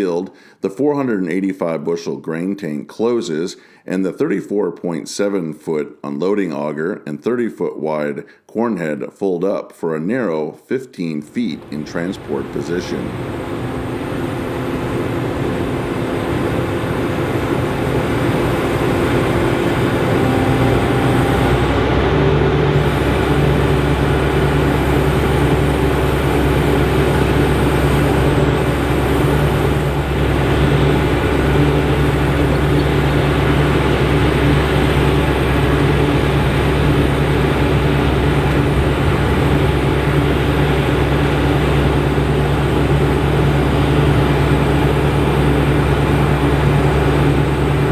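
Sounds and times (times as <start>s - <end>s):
combine harvester engine drone: 11.6s - 47.9s.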